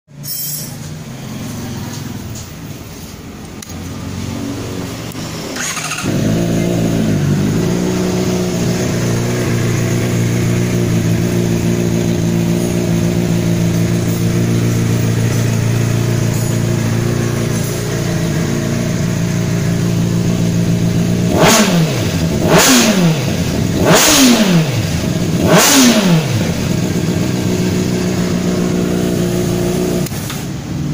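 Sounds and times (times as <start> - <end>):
motorcycle engine idling: 5.6 - 30.1.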